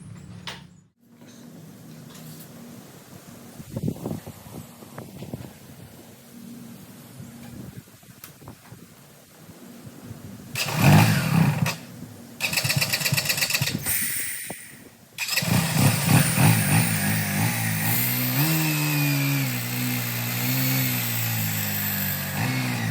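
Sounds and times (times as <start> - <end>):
motorcycle engine revving: 10.6 - 13.9, 15.2 - 22.9.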